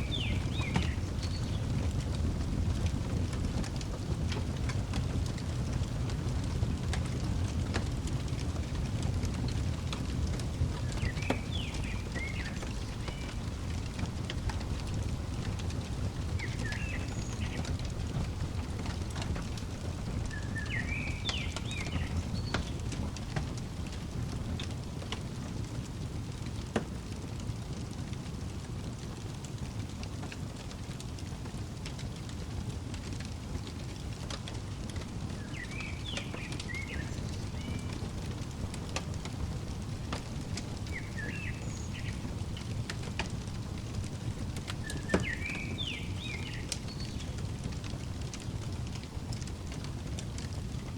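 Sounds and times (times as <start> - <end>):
songbird chirping: 0.0 - 2.0, 10.6 - 25.1, 34.6 - 48.6
wood fire crackling and popping: 0.0 - 50.9.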